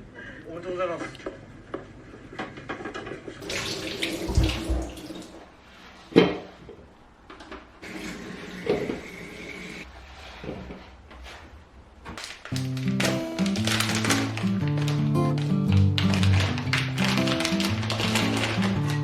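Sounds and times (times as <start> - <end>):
tap water running into sink: 3.4 - 5.4.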